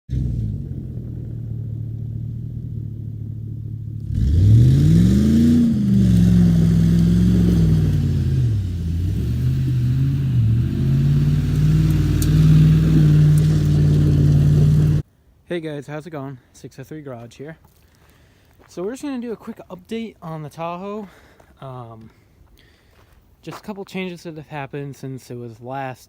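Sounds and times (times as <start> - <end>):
throaty car exhaust revving: 0.1 - 15.0.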